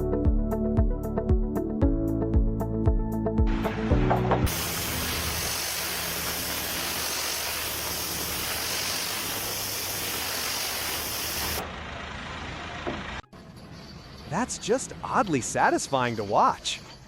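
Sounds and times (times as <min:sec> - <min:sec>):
hiss of escaping pressure: 0:04.5 - 0:11.6.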